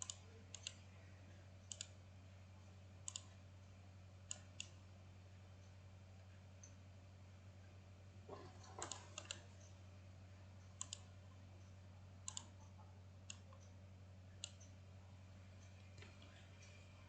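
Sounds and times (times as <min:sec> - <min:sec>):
computer mouse clicking: 0:00.0 - 0:00.8, 0:01.6 - 0:02.0, 0:03.0 - 0:03.4, 0:04.3 - 0:04.8, 0:08.3 - 0:09.8, 0:10.6 - 0:13.8, 0:14.4 - 0:14.8
faint electrical hum: 0:00.0 - 0:17.0.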